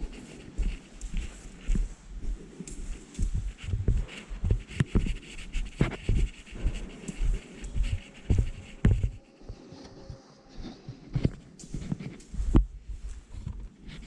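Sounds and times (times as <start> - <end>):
footsteps thumping: 0.0 - 9.2.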